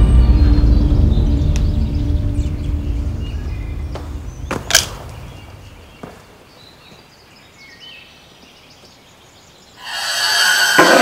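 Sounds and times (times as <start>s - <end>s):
low rumble: 0.0s - 5.9s
sharp cracks: 3.9s - 5.3s.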